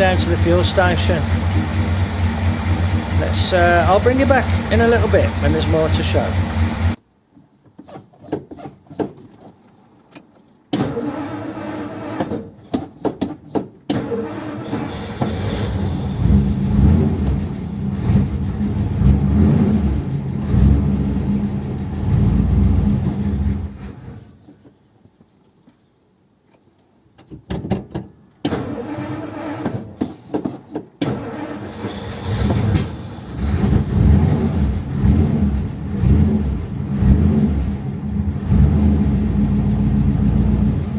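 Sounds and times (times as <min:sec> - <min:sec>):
car engine starting and running: 0:00.0 - 0:07.0, 0:14.0 - 0:24.2, 0:31.0 - 0:40.9.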